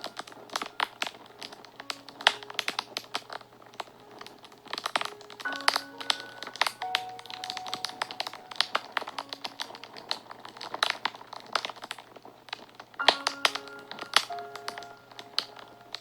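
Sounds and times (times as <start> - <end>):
fire crackling and popping: 0.0 - 16.0
soft background music: 0.0 - 16.0.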